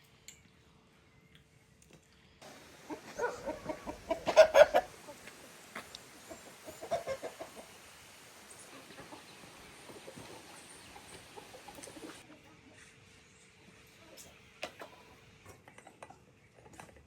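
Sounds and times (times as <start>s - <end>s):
chickens clucking: 2.4s - 13.0s, 13.6s - 16.2s.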